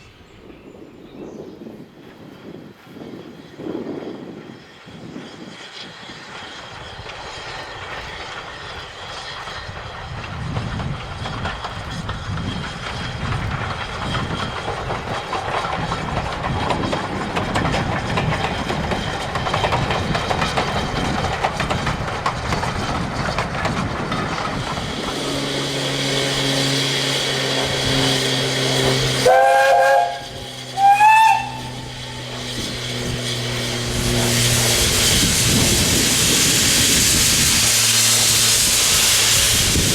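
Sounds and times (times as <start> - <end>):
steam train running: 0.0 - 39.9
steam locomotive whistle blasts: 28.7 - 32.7.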